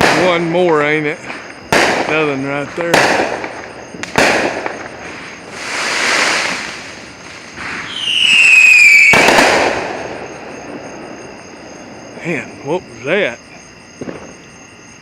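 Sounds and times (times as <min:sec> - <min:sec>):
firework crackling hiss: 0:00.0 - 0:11.4
firework bangs: 0:00.0 - 0:13.2, 0:14.0 - 0:14.6
firework whistle falling in pitch: 0:07.8 - 0:09.8.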